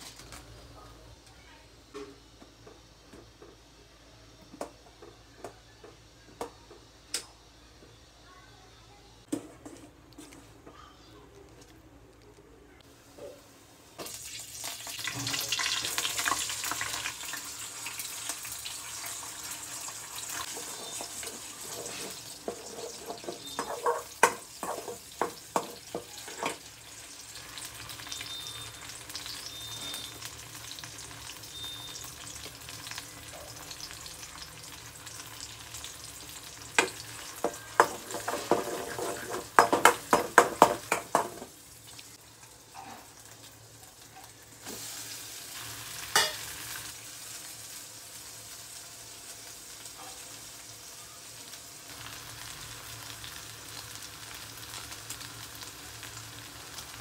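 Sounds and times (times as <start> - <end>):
egg sizzling in oil: 14.0 - 57.0
steel spoon scraping a pan: 20.4 - 25.0, 37.4 - 40.0.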